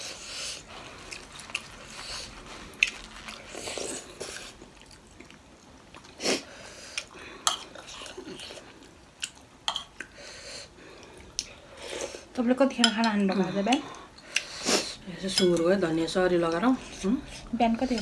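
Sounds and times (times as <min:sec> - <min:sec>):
wet chewing: 0:00.5 - 0:10.2.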